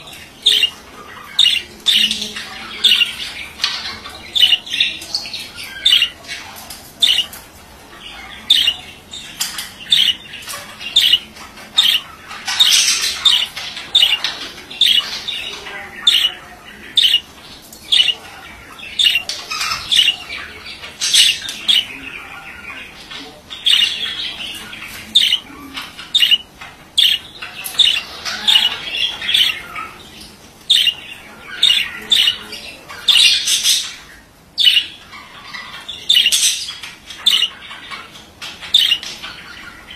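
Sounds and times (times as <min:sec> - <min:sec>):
budgerigar warbling chatter: 0:00.0 - 0:39.9
budgerigar squawks: 0:00.5 - 0:02.0, 0:07.0 - 0:07.3, 0:08.5 - 0:08.8, 0:10.9 - 0:11.2, 0:11.8 - 0:15.1, 0:16.1 - 0:16.3, 0:17.0 - 0:17.3, 0:17.9 - 0:18.2, 0:25.2 - 0:25.4, 0:26.0 - 0:30.0, 0:30.7 - 0:32.4, 0:37.2 - 0:37.6, 0:38.7 - 0:39.1.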